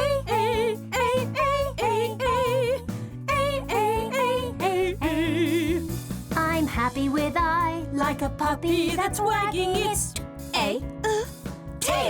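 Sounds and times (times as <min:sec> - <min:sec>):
vocal melody with vibrato: 0:00.0 - 0:06.0, 0:10.6 - 0:12.0
backing track music: 0:00.0 - 0:12.0.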